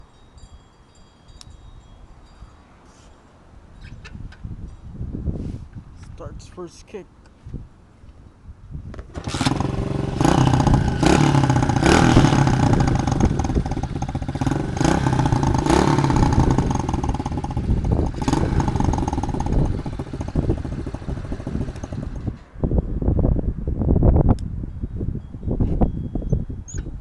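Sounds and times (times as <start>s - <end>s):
motorbike engine revving: 9.1s - 22.4s.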